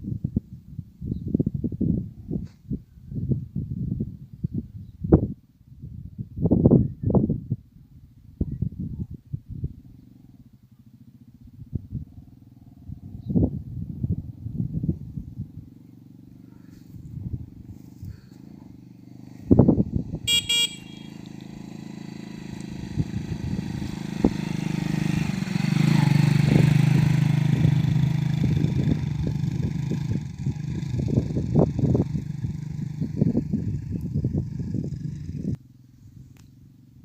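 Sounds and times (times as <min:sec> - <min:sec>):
motorcycle engine running: 0:08.4 - 0:37.0
horn beep: 0:20.3 - 0:21.2.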